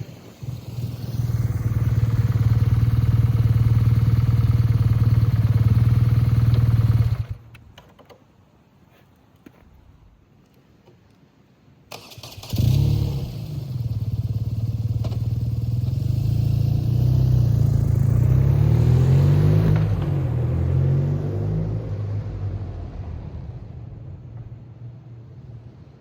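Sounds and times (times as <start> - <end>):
motorcycle engine idling: 0.1 - 7.4, 13.4 - 16.3
motorcycle starter turning over: 11.9 - 13.6.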